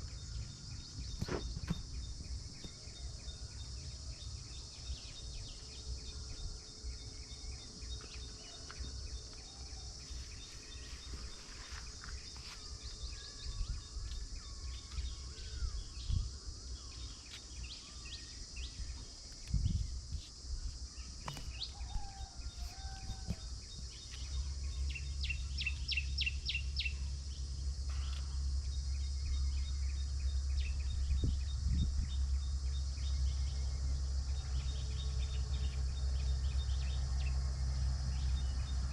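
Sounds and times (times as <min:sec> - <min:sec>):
high insect drone: 0:00.0 - 0:38.9
bird chirps: 0:20.9 - 0:38.9.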